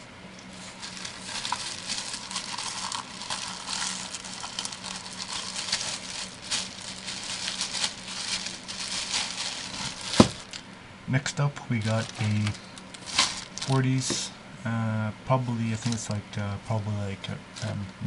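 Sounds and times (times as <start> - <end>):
small crackles and clicks: 0.4 - 10.6
plastic bag crinkling: 0.5 - 10.7, 11.7 - 14.2.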